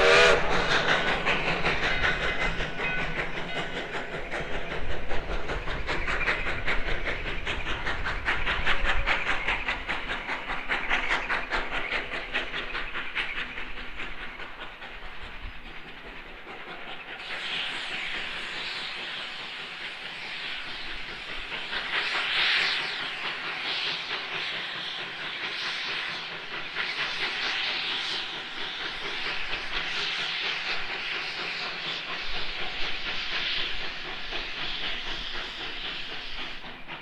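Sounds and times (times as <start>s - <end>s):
rushing steam hiss: 0.0s - 37.0s
steam locomotive exhaust beat: 0.0s - 37.0s.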